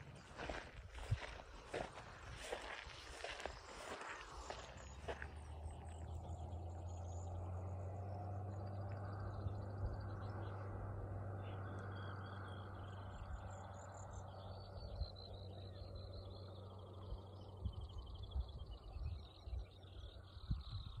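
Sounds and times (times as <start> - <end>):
birds singing: 0.1 - 21.0.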